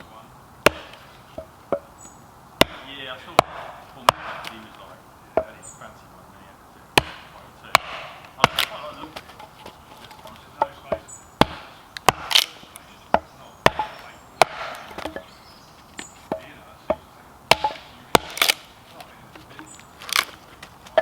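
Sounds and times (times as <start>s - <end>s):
blade chopping into wood: 0.6s - 1.9s, 2.6s - 4.7s, 7.0s - 9.3s, 10.6s - 12.6s, 13.2s - 15.3s, 16.0s - 18.7s.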